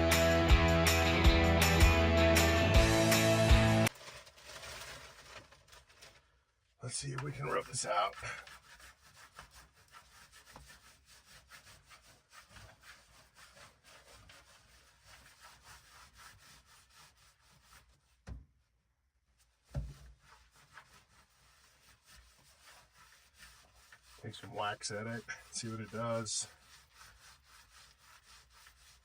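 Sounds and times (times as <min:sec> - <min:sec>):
rubbing and scraping on car floor: 0:07.0 - 0:18.7, 0:19.3 - 0:29.0.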